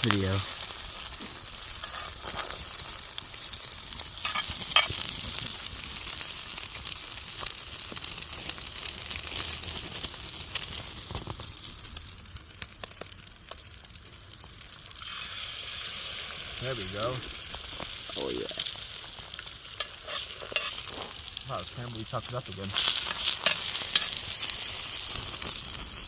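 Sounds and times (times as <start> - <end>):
sharp pops and ticks: 0.0 - 15.0, 16.6 - 26.0
eggs sizzling in a pan: 0.0 - 26.0.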